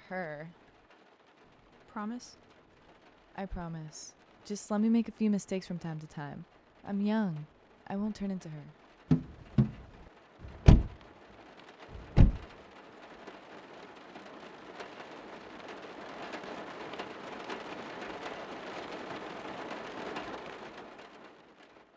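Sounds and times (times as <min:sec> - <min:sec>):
rain hissing: 0:08.8 - 0:21.7
heavy thumps: 0:09.1 - 0:11.0, 0:11.9 - 0:12.5.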